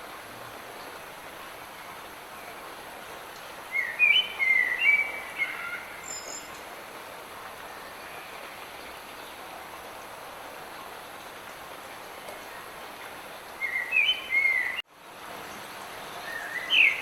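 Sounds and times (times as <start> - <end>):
light rain hissing: 0.0 - 17.0
songbird chirping: 3.7 - 6.7, 13.6 - 14.8, 16.0 - 17.0.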